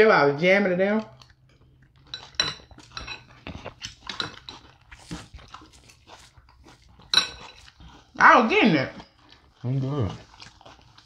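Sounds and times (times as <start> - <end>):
people chewing crunchy cereal: 0.8 - 11.0.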